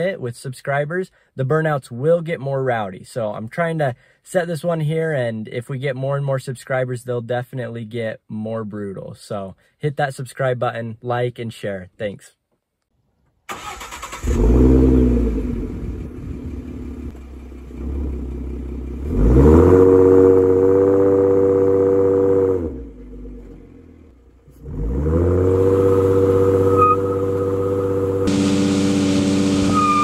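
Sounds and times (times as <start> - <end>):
car engine revving: 13.5 - 30.0.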